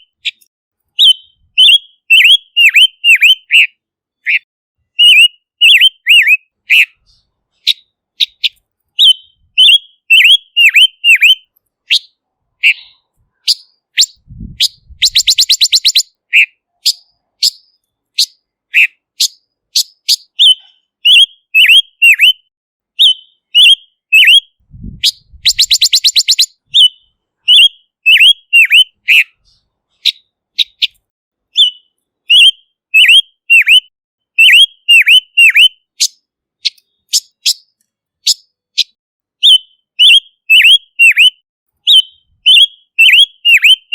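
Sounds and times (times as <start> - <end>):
fast rattling bird trill: 5.0 - 22.3, 25.0 - 31.0, 34.4 - 43.9.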